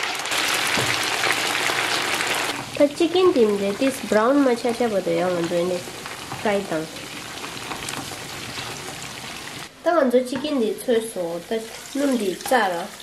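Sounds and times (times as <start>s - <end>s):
chicken wings sizzling in hot oil: 0.0s - 9.7s, 10.7s - 13.0s
person speaking: 2.8s - 5.8s.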